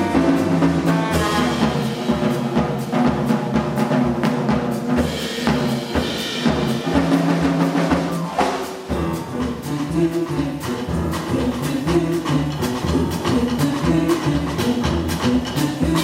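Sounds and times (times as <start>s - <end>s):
drum kit beat: 0.0s - 16.0s
jazz band music: 0.0s - 16.0s.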